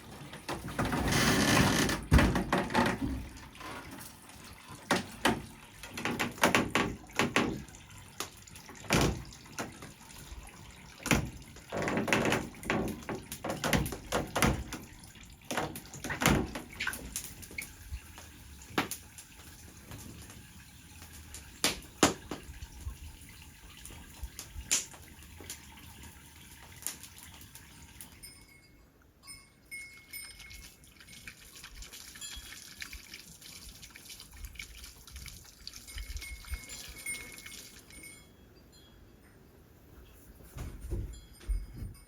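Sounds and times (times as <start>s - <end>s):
knocks and clatter: 0.4s - 4.0s, 4.9s - 7.7s, 11.0s - 14.9s
liquid splashing: 30.2s - 38.0s.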